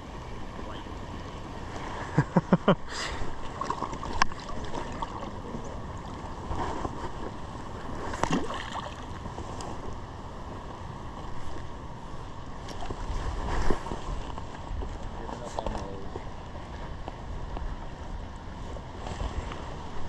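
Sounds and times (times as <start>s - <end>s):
stream running: 0.1s - 9.9s.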